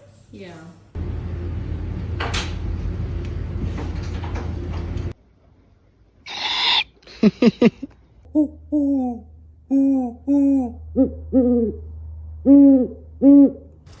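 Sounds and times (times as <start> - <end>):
owl hiss: 6.3 - 7.0
owl sharp calls: 6.3 - 7.0.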